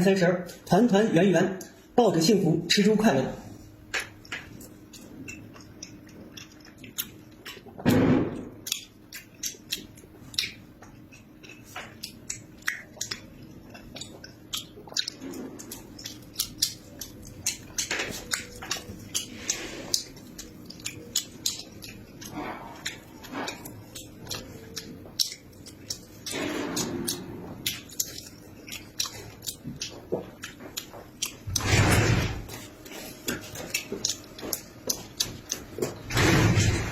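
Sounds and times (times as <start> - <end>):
person chewing and biting: 4.0 - 31.7, 32.4 - 36.1
wet mouth clicks and smacks: 8.6 - 31.4.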